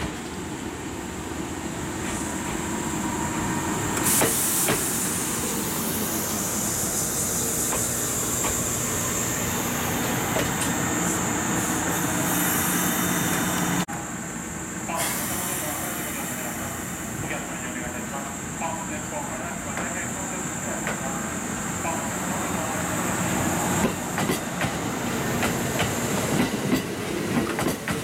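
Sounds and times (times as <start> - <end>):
wheels clacking over rail joints: 23.8 - 28.0.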